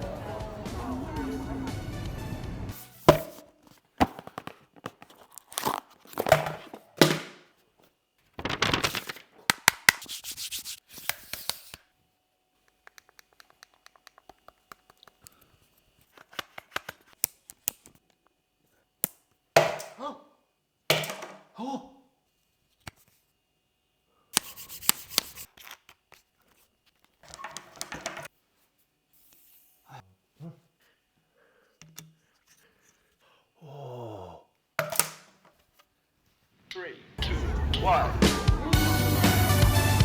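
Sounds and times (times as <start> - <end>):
packaging tearing: 5.0 - 6.3, 8.4 - 9.9.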